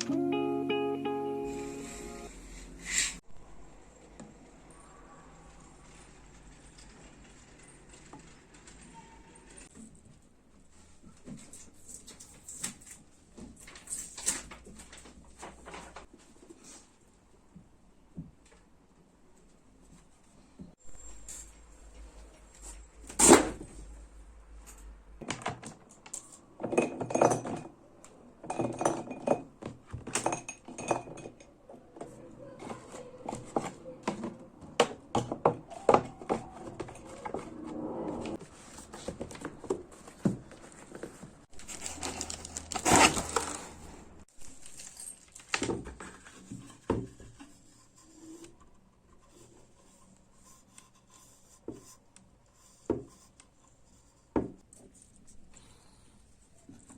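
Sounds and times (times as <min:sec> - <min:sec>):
rustling: 0:35.7 - 0:51.6.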